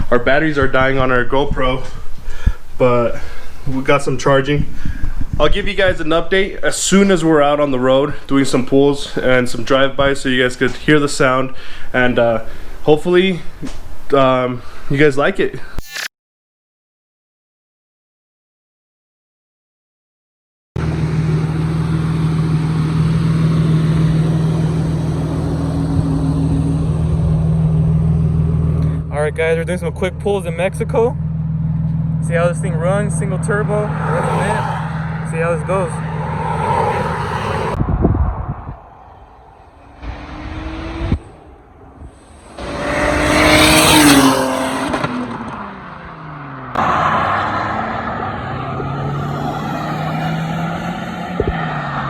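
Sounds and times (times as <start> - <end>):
car engine revving: 20.8 - 29.0, 30.4 - 37.8, 38.8 - 52.0
car engine running steadily: 20.8 - 34.0
car accelerating past: 33.4 - 52.0.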